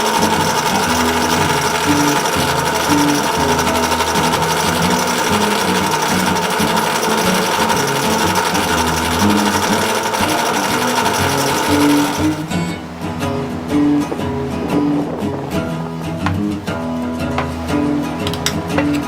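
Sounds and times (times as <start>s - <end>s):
small power tool buzzing: 0.0s - 12.5s
acoustic guitar blues music: 0.0s - 19.0s.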